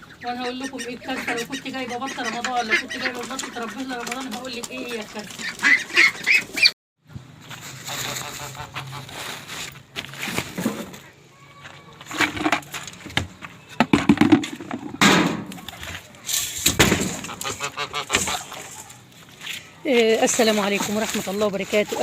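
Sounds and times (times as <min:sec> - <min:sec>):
waterfowl honking and quacking: 0:00.0 - 0:06.7, 0:07.8 - 0:09.4, 0:17.1 - 0:19.4, 0:20.3 - 0:22.0
rustling: 0:07.4 - 0:11.2, 0:14.2 - 0:22.0.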